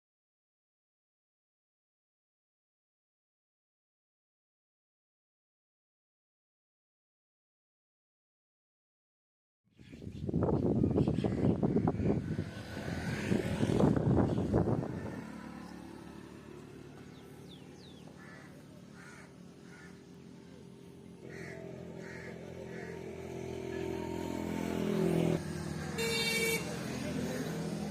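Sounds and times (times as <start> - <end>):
engine humming: 11.9 - 27.9.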